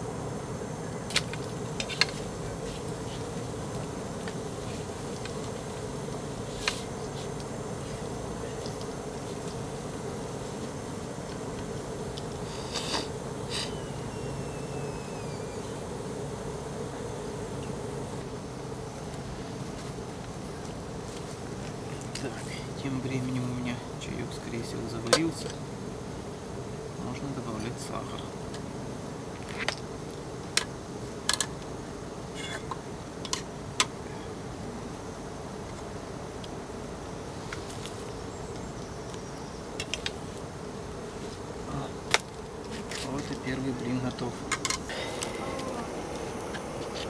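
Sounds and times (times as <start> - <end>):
gas burner humming: 0.0 - 19.3, 42.8 - 47.0
steady hiss: 0.0 - 47.0.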